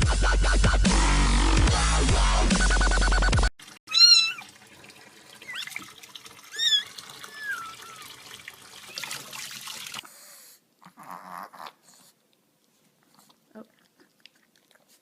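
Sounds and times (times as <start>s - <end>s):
water running from a tap: 3.6s - 10.0s
cat mewing: 3.9s - 4.5s, 6.6s - 8.2s.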